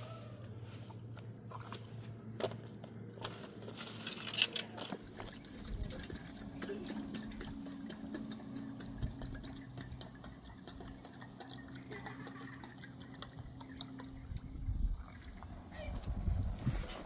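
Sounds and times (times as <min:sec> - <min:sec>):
steady low hum: 0:00.0 - 0:17.0
running water splashing: 0:05.1 - 0:15.7
water dripping: 0:05.1 - 0:15.7.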